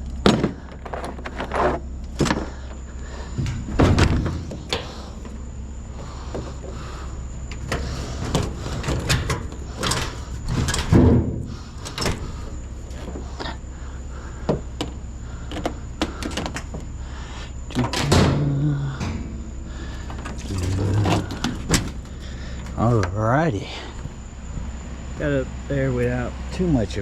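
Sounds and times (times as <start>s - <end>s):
heavy thuds: 0.0s - 25.2s
steady low hum: 0.0s - 27.0s
scrap metal knocks and scrapes: 7.6s - 12.4s.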